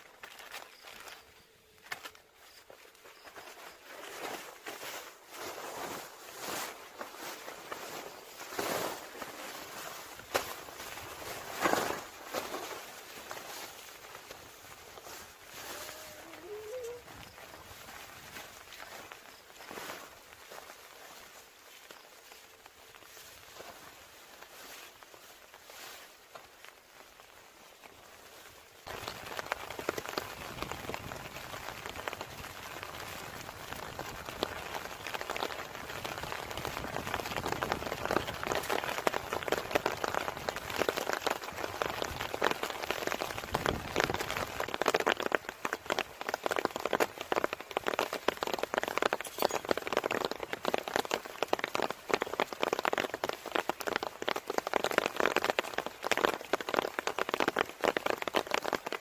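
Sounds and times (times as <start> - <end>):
heavy rain falling: 9.2 - 19.7, 26.4 - 59.0.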